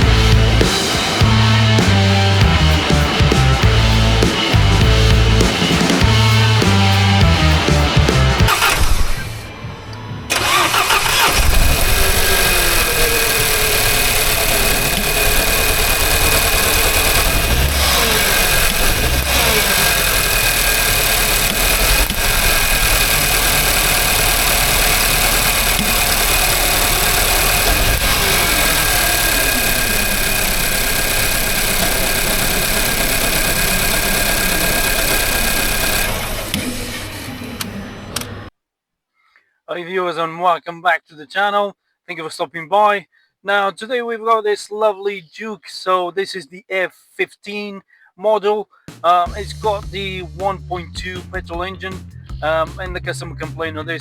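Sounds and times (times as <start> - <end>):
car engine starting and running: 0.0 - 38.5.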